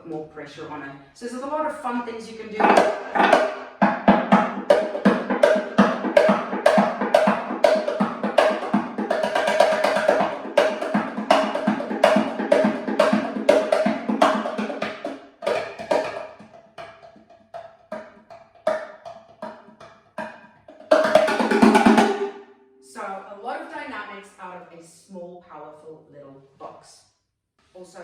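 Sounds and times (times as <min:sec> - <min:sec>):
cajon played in a fast groove: 0:02.6 - 0:22.4.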